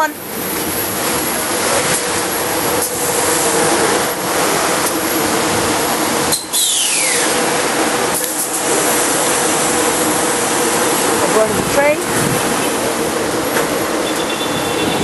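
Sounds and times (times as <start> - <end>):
electric train slowing: 0.0 - 15.0
high whine falling in pitch: 1.3 - 13.1.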